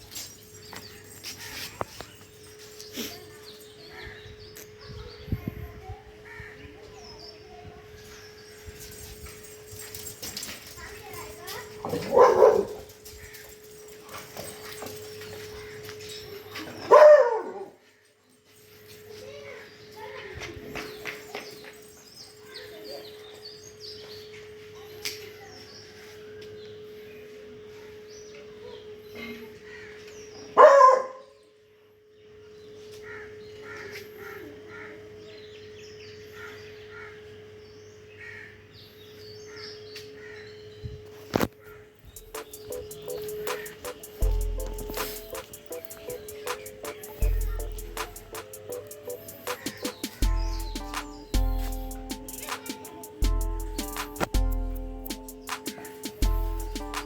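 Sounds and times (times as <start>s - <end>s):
dog barking: 11.9s - 12.9s, 16.8s - 17.8s, 30.6s - 31.3s
birds calling: 38.2s - 57.0s.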